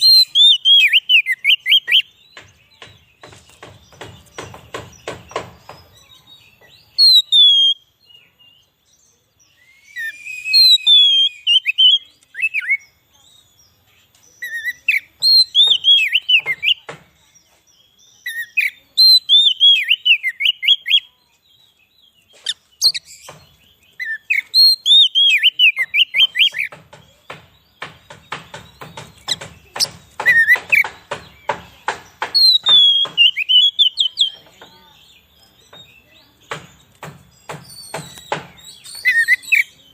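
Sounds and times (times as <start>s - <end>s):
bird singing whistled phrases: 0.0s - 2.1s, 6.9s - 8.0s, 9.5s - 13.4s, 14.4s - 16.8s, 18.2s - 21.2s, 22.5s - 23.2s, 24.0s - 26.7s, 32.3s - 34.4s, 37.6s - 39.9s
dry ticking bird notes: 0.0s - 8.0s, 14.0s - 17.2s, 22.1s - 39.9s.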